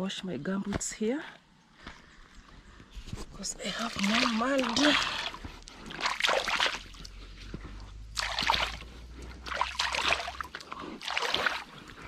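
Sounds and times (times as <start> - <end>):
water splashing and sloshing: 3.0 - 12.0.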